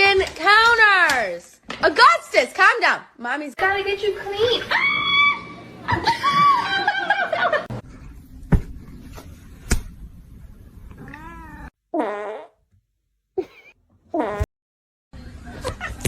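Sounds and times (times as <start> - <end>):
cat meowing: 11.0 - 11.7.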